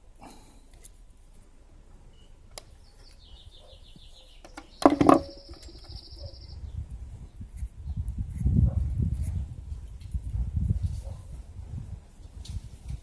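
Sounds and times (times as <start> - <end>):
small bird singing high trills: 2.1 - 6.8.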